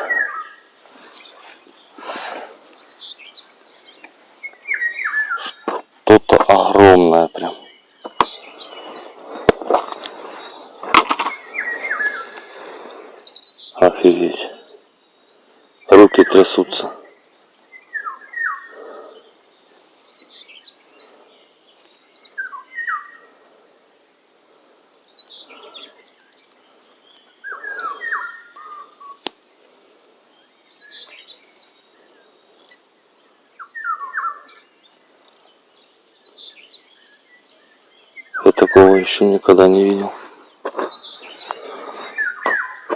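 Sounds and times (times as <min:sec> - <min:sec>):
songbird singing whistled notes: 0:00.0 - 0:02.1, 0:02.8 - 0:05.6, 0:10.3 - 0:12.4, 0:17.0 - 0:18.8, 0:19.4 - 0:23.3, 0:25.0 - 0:29.3, 0:30.3 - 0:39.2, 0:40.5 - 0:42.9.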